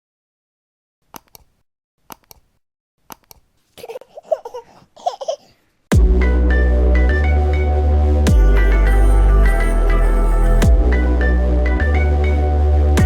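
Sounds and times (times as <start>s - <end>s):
baby babbling: 3.8s - 5.6s.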